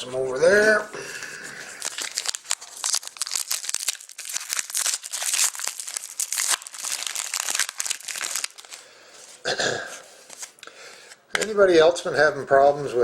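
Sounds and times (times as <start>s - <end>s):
plastic wrappers crinkling: 0.0s - 9.4s, 10.2s - 10.7s.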